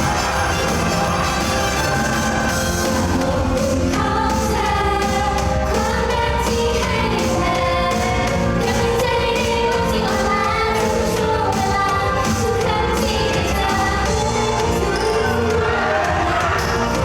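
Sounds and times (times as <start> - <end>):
pop song over speakers: 0.0 - 17.0
girl singing: 3.2 - 15.2.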